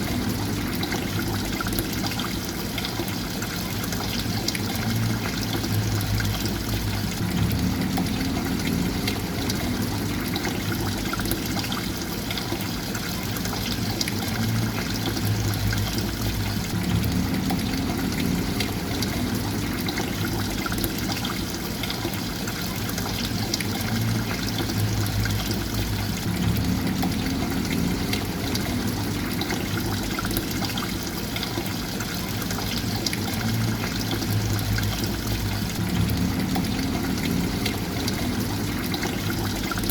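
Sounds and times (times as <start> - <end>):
water trickling: 0.0 - 39.9
low rumble: 5.0 - 11.3, 14.5 - 21.0, 24.0 - 30.6, 33.6 - 39.9.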